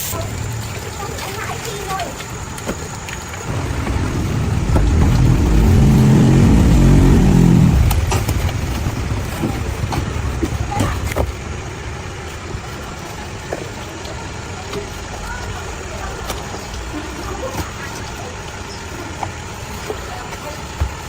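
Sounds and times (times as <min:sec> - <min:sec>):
vehicle engine passing by: 0:03.5 - 0:09.2.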